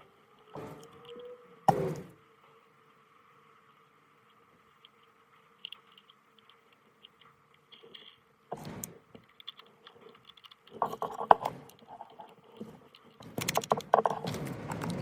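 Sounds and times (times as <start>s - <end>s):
small hard parts clicking: 4.2s - 15.0s.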